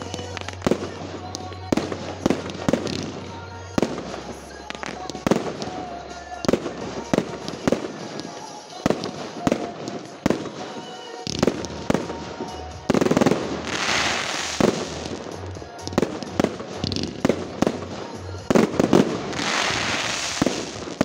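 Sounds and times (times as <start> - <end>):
fireworks bursts: 0.0 - 21.0
fireworks crackling hiss: 0.0 - 21.0
music with bass line: 11.4 - 21.0.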